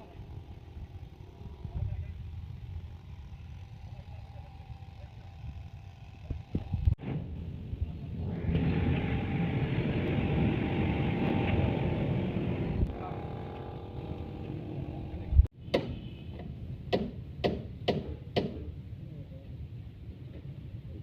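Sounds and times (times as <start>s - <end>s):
engine running: 0.0s - 15.5s.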